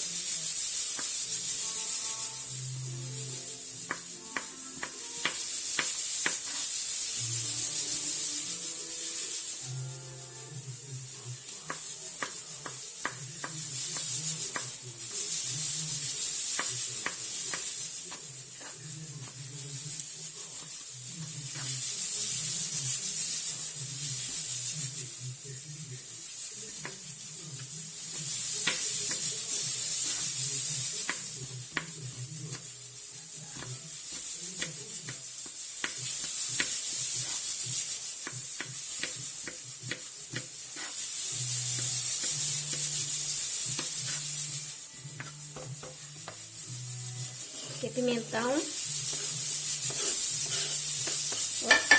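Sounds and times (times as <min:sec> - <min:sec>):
food sizzling in a frying pan: 0:00.0 - 0:51.9
utensil clicking against pan: 0:00.9 - 0:01.2, 0:03.9 - 0:06.6, 0:11.7 - 0:14.8, 0:16.2 - 0:20.1, 0:27.6 - 0:32.7, 0:33.6 - 0:41.1, 0:49.0 - 0:51.9.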